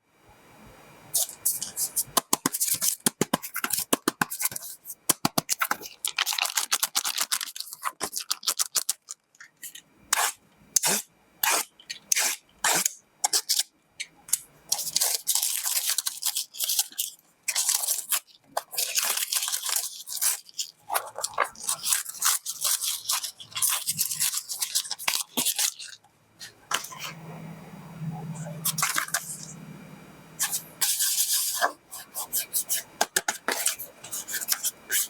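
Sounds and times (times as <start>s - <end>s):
plastic wrap crinkling and tearing: 1.2s - 13.6s, 14.7s - 27.1s.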